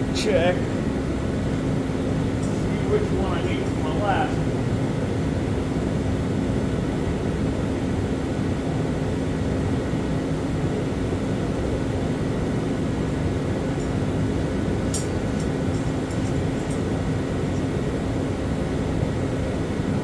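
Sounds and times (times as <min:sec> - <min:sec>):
machine drone with low hum: 0:00.0 - 0:20.0
light clicks: 0:14.8 - 0:17.6.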